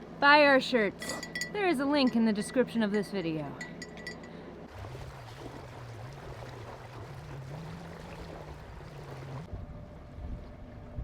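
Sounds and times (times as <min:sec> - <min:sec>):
low wavering hum: 0:00.0 - 0:11.0
water rushing along hull: 0:03.6 - 0:11.0.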